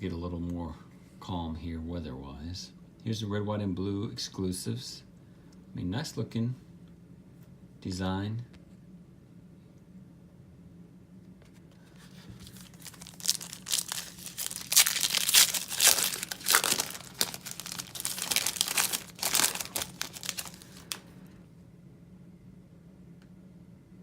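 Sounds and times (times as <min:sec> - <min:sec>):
wrapper tearing and crinkling: 0:12.4 - 0:21.0.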